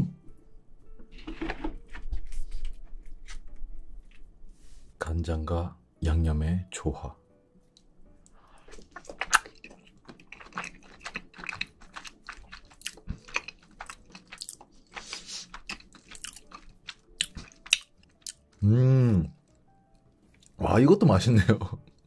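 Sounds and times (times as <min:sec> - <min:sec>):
person chewing wet smacking: 0:08.6 - 0:18.6.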